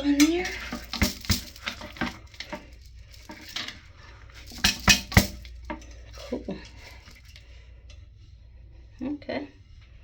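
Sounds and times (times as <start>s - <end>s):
plastic parts clicking and knocking: 0.0s - 3.8s, 4.4s - 5.9s.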